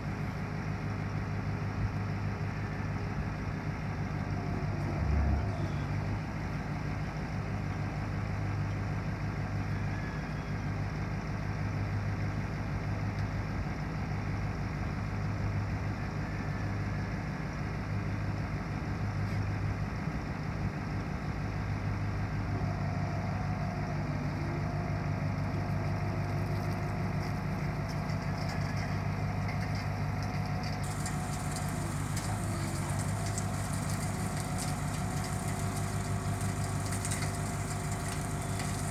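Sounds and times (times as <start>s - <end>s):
truck engine idling: 21.5s - 38.9s.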